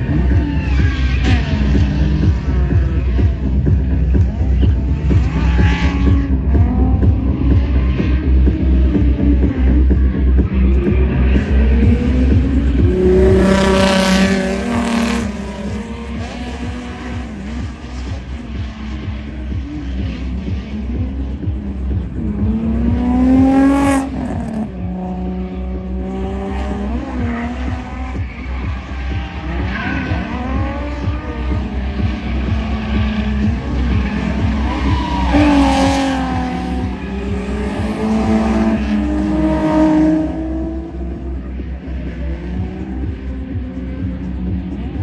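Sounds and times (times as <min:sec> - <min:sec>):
car engine revving hard: 0:10.7 - 0:45.0
tire squeal: 0:33.5 - 0:39.5.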